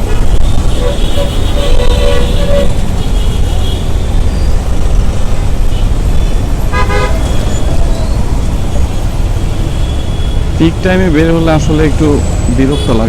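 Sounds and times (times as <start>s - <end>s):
vehicle horn toot: 0.0s - 3.9s, 5.7s - 7.6s
road traffic rumble: 0.0s - 13.0s.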